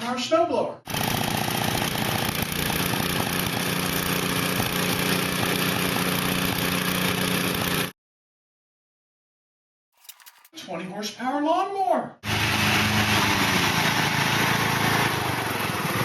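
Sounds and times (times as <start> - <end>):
snowblower engine running: 0.9 - 7.9, 12.2 - 16.0.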